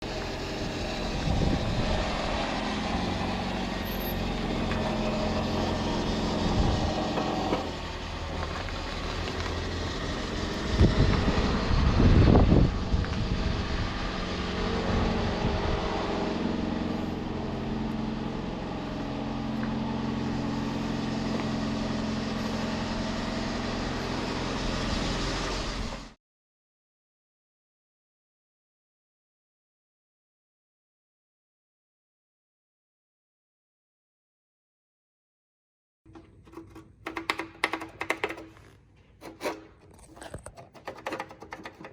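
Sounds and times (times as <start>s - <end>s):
vehicle engine running: 0.0s - 26.2s.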